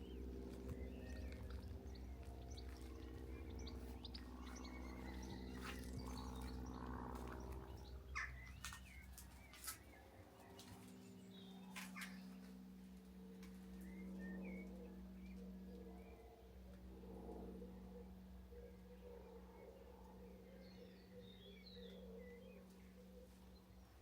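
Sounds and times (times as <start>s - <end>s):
small songbirds chirping: 0.0s - 12.7s, 17.7s - 24.0s
steady low hum: 0.0s - 24.0s.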